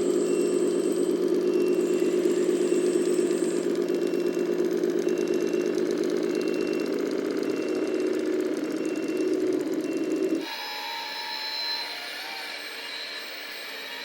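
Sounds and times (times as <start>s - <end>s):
faint short high beep: 0.0s - 4.5s, 5.1s - 9.3s
model truck engine idling: 0.0s - 10.4s.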